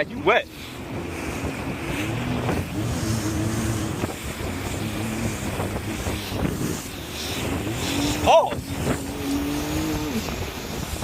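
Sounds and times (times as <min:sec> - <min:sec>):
jet ski engine running: 0:00.0 - 0:11.0
wind buffeting microphone: 0:00.0 - 0:11.0.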